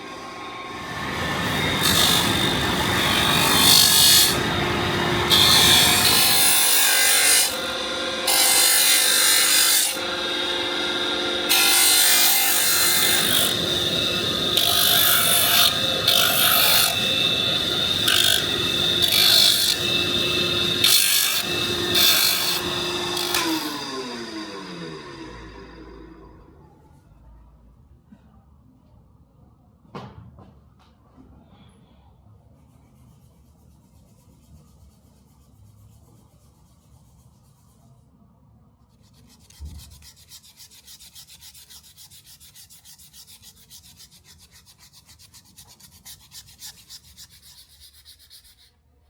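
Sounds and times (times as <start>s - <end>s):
electric sander running: 0.5s - 6.7s, 9.8s - 26.6s.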